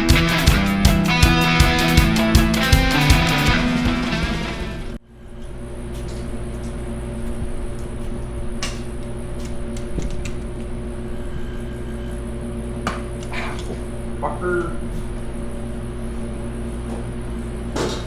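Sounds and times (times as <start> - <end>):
music: 0.0 - 5.0
steady hum: 0.0 - 18.0.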